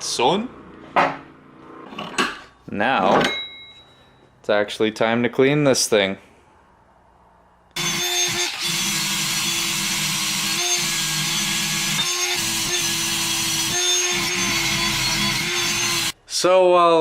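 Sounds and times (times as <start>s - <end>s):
electric power tool grinding metal: 7.8s - 16.2s.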